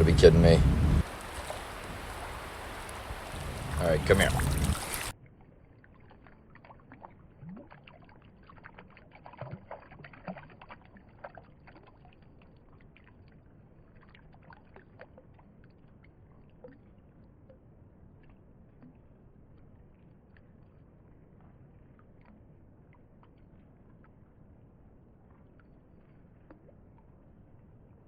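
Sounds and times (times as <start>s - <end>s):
running creek water: 0.0s - 24.5s
fish splashing: 1.0s - 5.1s.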